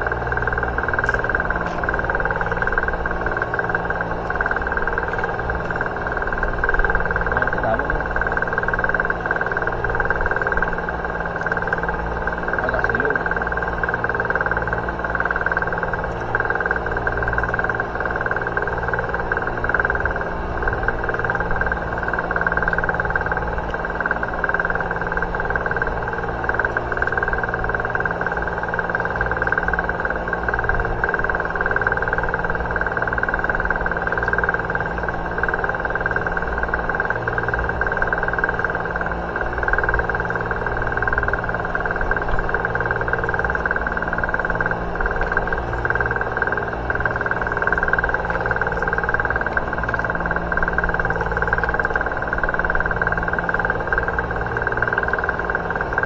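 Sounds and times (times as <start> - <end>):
boat engine running steadily: 0.0 - 56.0.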